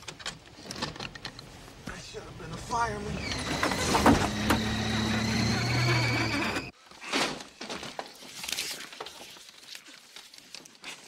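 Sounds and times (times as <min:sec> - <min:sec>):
car engine humming and whining: 0:03.2 - 0:06.7.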